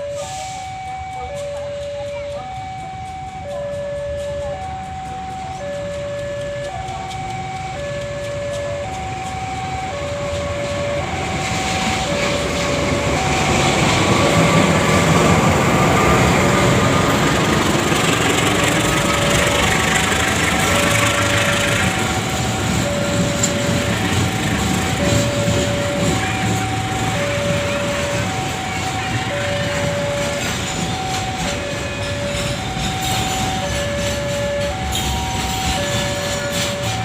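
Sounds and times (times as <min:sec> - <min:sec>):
freight train wheel rumble: 0:00.0 - 0:37.0
two-tone crossing alarm: 0:00.0 - 0:37.0.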